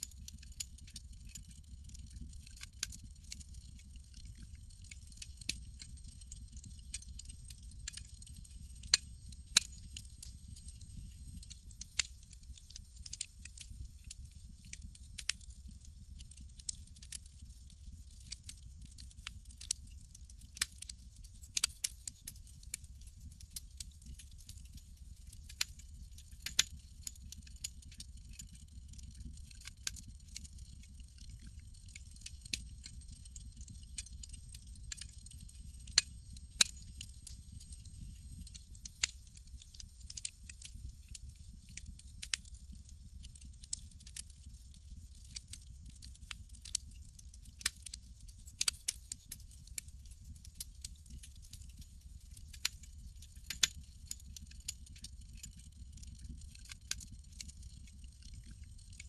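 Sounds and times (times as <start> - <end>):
low steady rumble: 0.0 - 15.0
campfire crackling and popping: 0.0 - 59.0.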